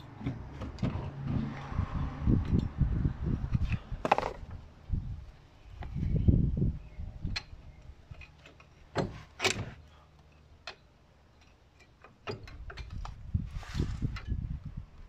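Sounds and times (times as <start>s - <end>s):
tools and metal parts clicking: 7.2s - 13.3s.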